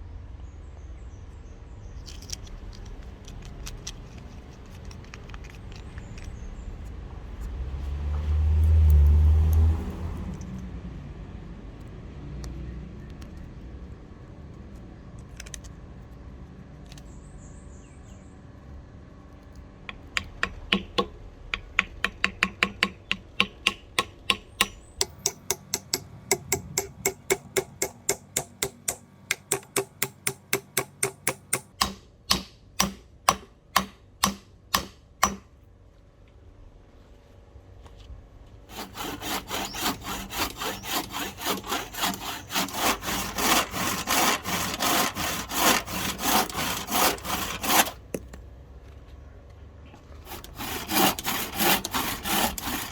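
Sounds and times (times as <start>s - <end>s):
hand tool tapping: 19.9s - 35.4s.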